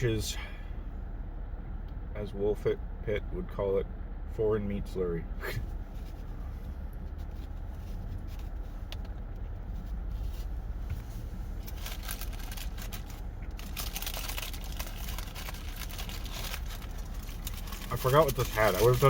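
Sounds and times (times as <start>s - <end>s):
steady low hum: 0.0s - 19.0s
paper wrapper crinkling: 11.6s - 19.0s.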